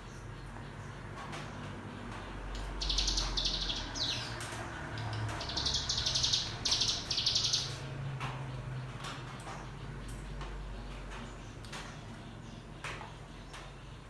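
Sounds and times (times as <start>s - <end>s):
bird buzzy rattling trills: 2.6s - 7.9s.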